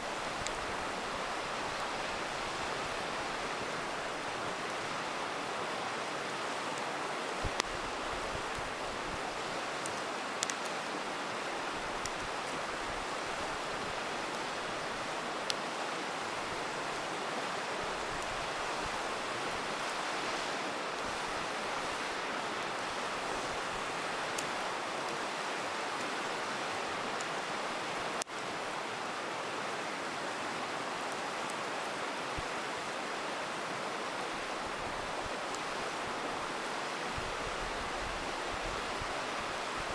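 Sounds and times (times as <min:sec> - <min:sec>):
campfire crackling and popping: 0:00.0 - 0:05.2, 0:06.0 - 0:17.1, 0:17.7 - 0:20.3, 0:22.8 - 0:27.3
river rushing: 0:00.0 - 0:39.9.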